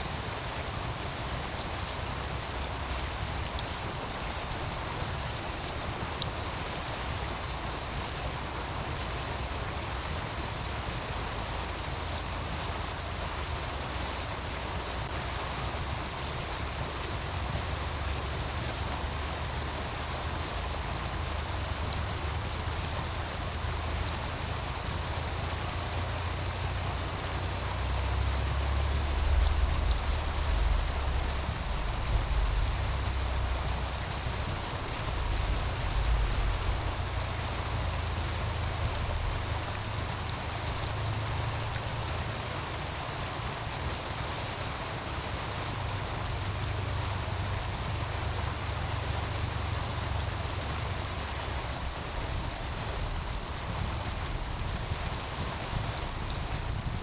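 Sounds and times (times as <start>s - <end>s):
stream running: 0.0s - 57.0s
wood fire crackling: 0.0s - 57.0s
low rumble: 27.6s - 41.8s, 51.6s - 57.0s.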